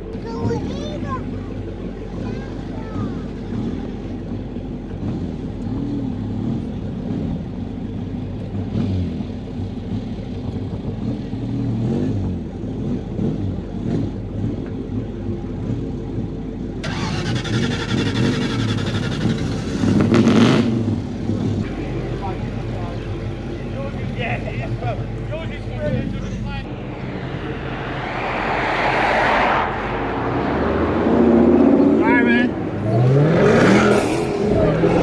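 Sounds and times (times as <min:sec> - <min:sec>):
car engines running: 0:00.0 - 0:35.0
loud rushing noise: 0:26.4 - 0:35.0.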